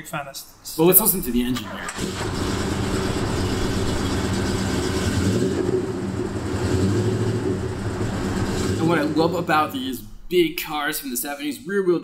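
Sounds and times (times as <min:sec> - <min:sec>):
car engine running: 0:01.2 - 0:10.7.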